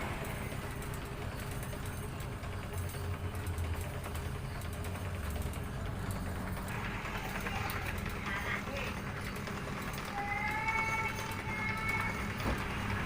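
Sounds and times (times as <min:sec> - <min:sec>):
motor low hum: 0:00.0 - 0:13.0.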